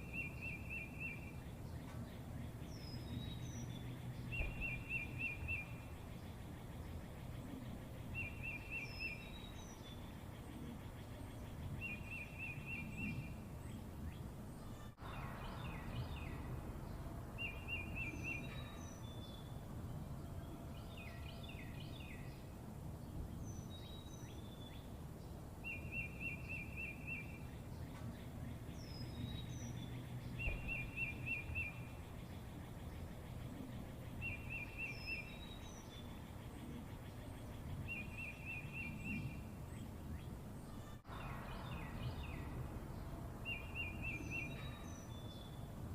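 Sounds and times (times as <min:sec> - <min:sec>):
high bird chirps: 0:25.6 - 0:33.1.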